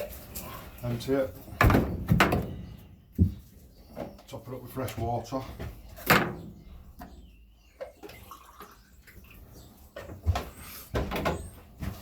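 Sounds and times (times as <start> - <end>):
water pouring into bird drinker: 8.0 - 9.2.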